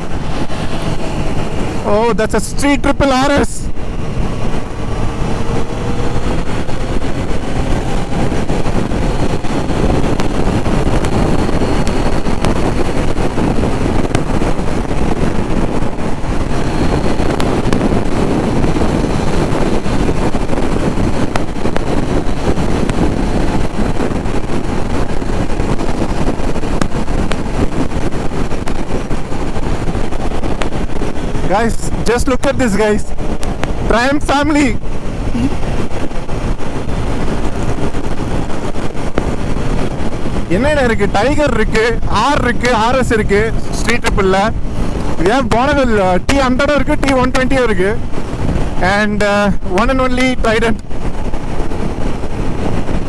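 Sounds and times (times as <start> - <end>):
wind rushing over microphone: 0.0 - 53.0
motorcycle engine running: 3.7 - 32.1, 33.0 - 40.6.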